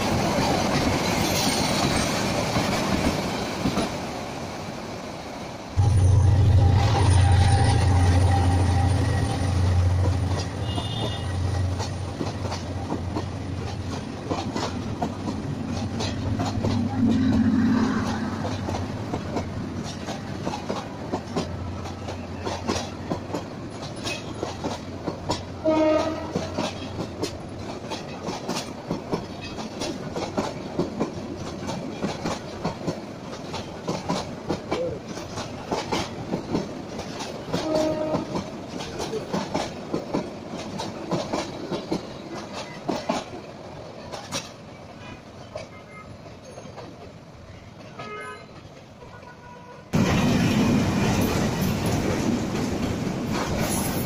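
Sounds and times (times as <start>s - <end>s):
train horn toot: 5.8s - 11.7s, 25.6s - 26.9s, 37.6s - 38.5s, 48.0s - 50.0s
wheels clattering over rail joints: 5.8s - 49.0s.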